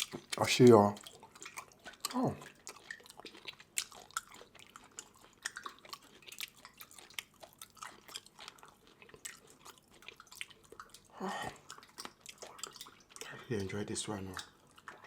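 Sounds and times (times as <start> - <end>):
wet chewing and mouth smacks: 0.0 - 15.0.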